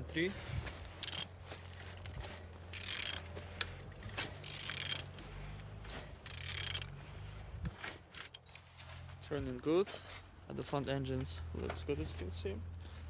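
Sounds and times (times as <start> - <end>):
engine turned over by hand ratcheting: 0.7 - 9.2.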